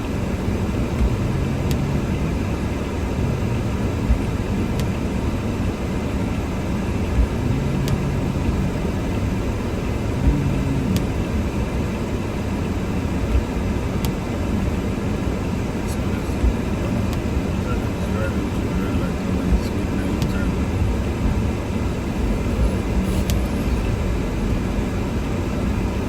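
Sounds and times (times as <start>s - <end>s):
car engine and tyres rumbling: 0.0s - 26.0s
soft low thump: 1.0s - 2.4s, 3.2s - 5.0s, 7.1s - 8.8s, 10.2s - 11.2s.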